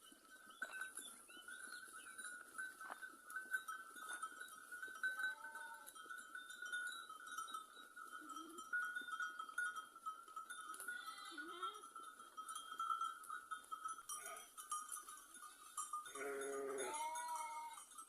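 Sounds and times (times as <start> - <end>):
sheep bells clinking: 0.0 - 18.0
sheep bleat: 5.3 - 5.9, 10.9 - 11.8, 16.2 - 17.8.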